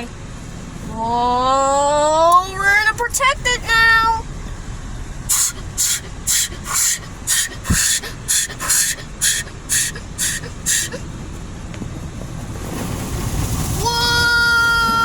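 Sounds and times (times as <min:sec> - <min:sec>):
water jets hissing bursts: 0:05.3 - 0:11.1.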